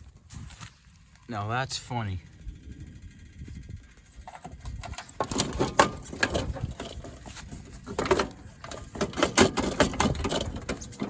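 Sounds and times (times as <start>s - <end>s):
fan parts clattering and scraping: 2.3s - 11.0s.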